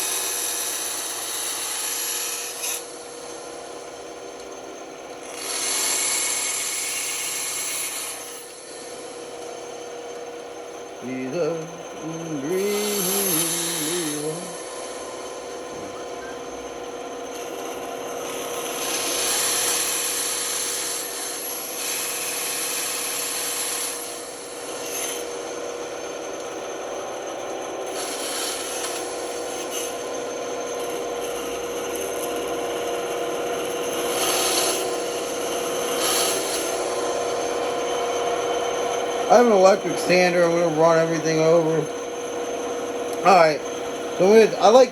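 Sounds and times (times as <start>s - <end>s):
power tool motor hum: 5.2s - 9.9s, 11.2s - 26.7s, 27.8s - 44.9s.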